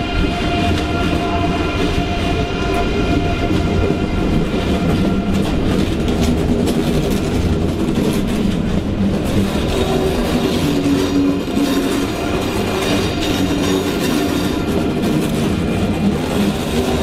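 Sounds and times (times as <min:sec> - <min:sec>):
train rumble: 0:00.0 - 0:17.0
wheels clattering over rail joints: 0:04.5 - 0:17.0.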